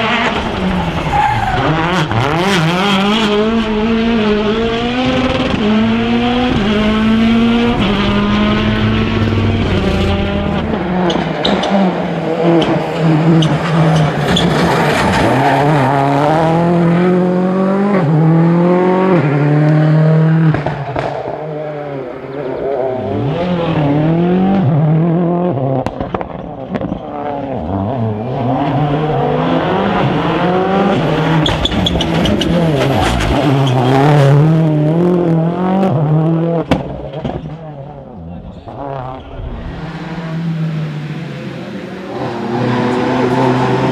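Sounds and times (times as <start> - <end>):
rally car engines revving: 0.0 - 43.9.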